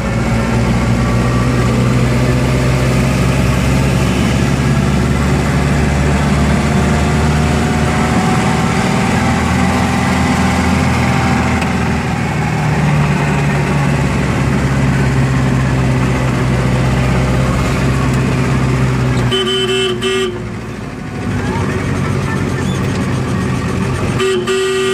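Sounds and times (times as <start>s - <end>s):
vehicle engine running: 0.0s - 24.9s
vehicle horn toot: 19.2s - 20.5s, 24.1s - 24.9s.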